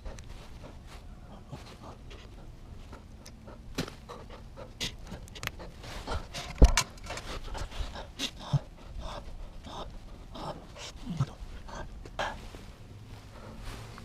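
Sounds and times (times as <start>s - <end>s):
hand tools clicking and knocking: 4.8s - 7.8s.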